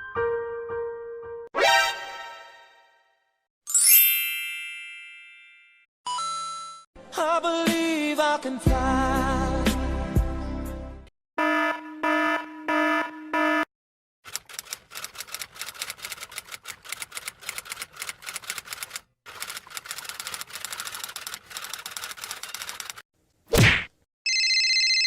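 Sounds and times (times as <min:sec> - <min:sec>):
fast irregular clicking: 0:14.3 - 0:23.0.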